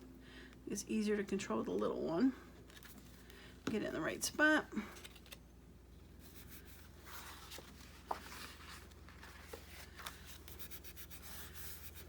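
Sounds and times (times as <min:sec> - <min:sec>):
paper rustling: 0:06.3 - 0:12.0.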